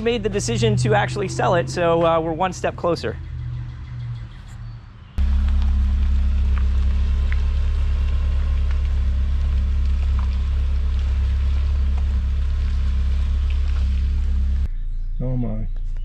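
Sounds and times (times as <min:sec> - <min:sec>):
loud low machine hum: 0:05.2 - 0:14.7.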